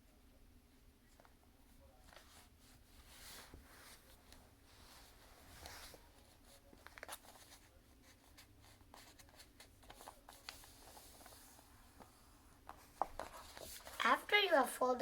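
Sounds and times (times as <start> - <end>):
paper crinkles: 5.6 - 12.1, 12.7 - 14.2
paper rustling and creasing: 8.4 - 15.0.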